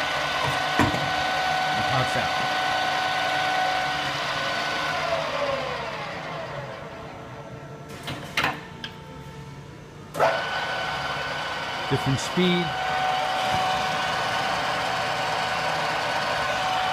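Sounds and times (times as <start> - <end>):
drill press gear whine: 0.0 - 7.9, 10.1 - 16.9.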